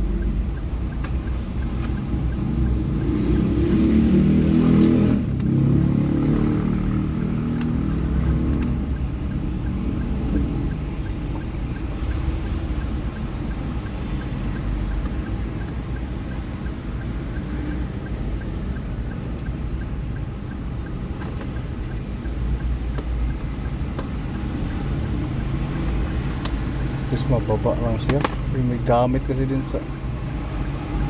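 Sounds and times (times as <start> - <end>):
car engine idling: 6.7 - 31.0.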